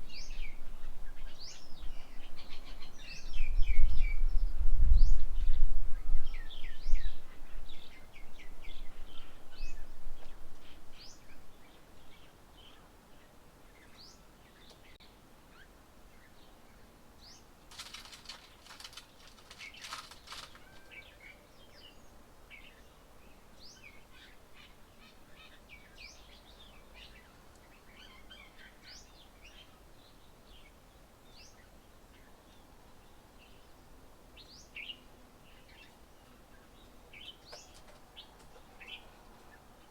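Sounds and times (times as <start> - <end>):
small birds chirping: 0.0 - 39.9
rustling: 17.7 - 21.1.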